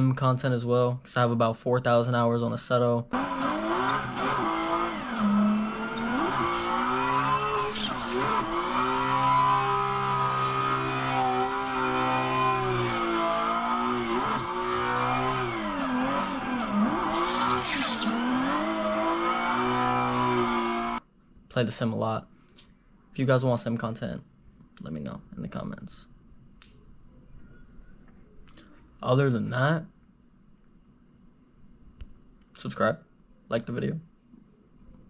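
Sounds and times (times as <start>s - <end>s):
car engine revving: 3.2s - 21.0s
tires squealing: 3.2s - 21.0s.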